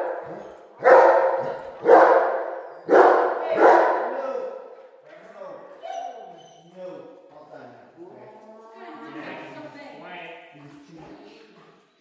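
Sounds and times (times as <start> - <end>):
dog barking with echo: 0.0 - 4.6.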